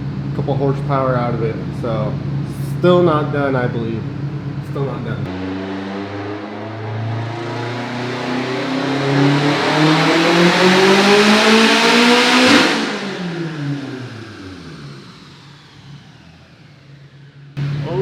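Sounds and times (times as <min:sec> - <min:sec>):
car engine at full throttle: 0:04.1 - 0:18.0
engine and rollers spinning down: 0:05.3 - 0:18.0.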